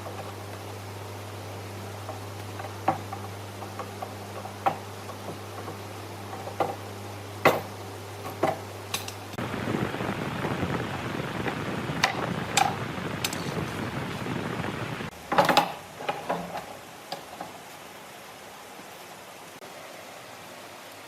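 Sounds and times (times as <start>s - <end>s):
steady low hum: 0.0s - 20.6s
rushing noise: 9.4s - 15.1s.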